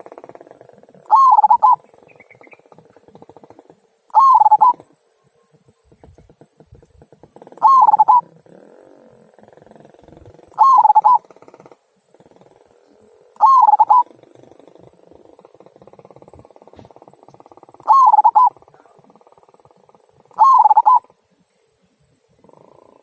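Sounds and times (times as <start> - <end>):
dove cooing: 0.0 - 21.2.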